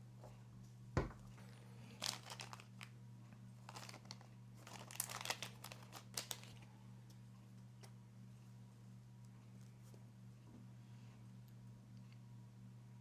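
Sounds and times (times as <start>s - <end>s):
low electrical hum: 0.0s - 13.0s
crinkling and light clicks: 2.0s - 8.0s.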